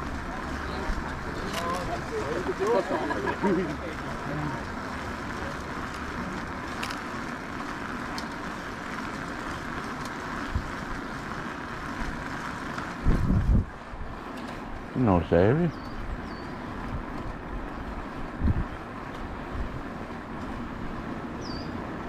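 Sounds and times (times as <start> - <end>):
tyres rolling: 0.0 - 22.0
wind noise: 11.9 - 14.3, 15.9 - 21.8.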